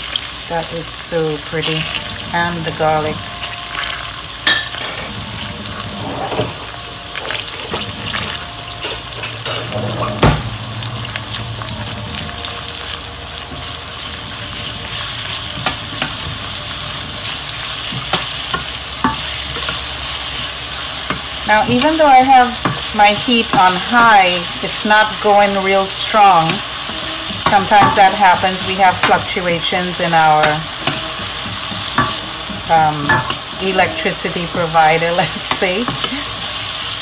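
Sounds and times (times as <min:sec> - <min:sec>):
vegetables sizzling in oil: 0:00.0 - 0:37.0
metal spoon scraping a pan: 0:12.2 - 0:37.0.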